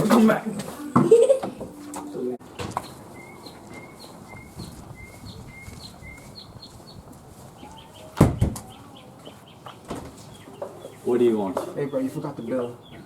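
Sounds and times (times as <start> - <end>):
small bird chirping: 2.8 - 13.0
loud thump: 8.2 - 8.6.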